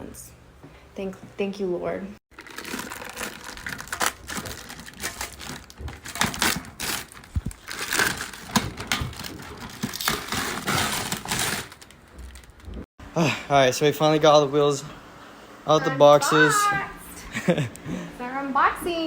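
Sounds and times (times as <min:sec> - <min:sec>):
cardboard and plastic crinkling: 0:02.3 - 0:12.9.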